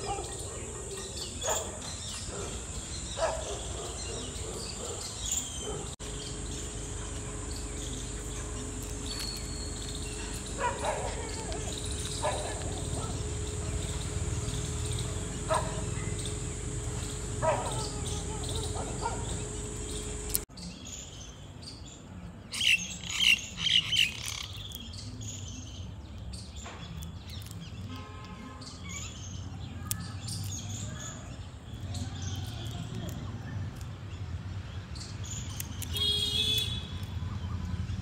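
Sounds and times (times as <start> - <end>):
small birds chirping: 0.0 - 28.0, 28.6 - 38.0
steady hum: 5.8 - 20.5.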